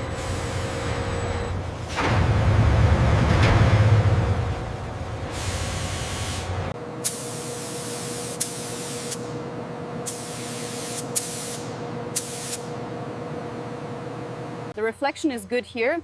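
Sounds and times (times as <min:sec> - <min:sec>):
paint spray gun hissing: 0:10.1 - 0:12.7.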